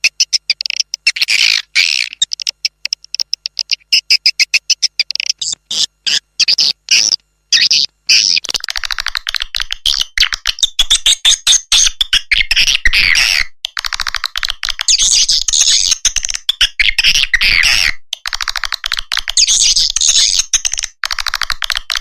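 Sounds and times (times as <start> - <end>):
swiftlet chattering twitters: 0.0 - 17.5.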